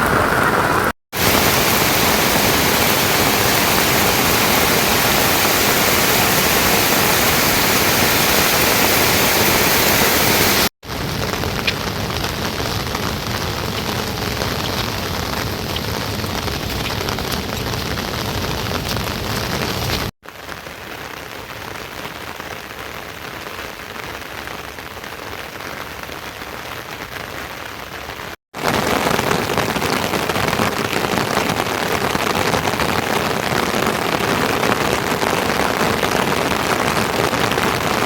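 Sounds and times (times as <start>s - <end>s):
steady rain hiss: 0.0s - 24.7s.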